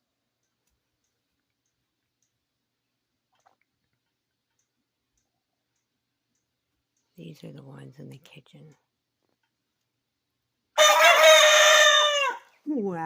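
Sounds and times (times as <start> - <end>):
soft regular ticks: 0.0 - 2.6, 3.2 - 10.0.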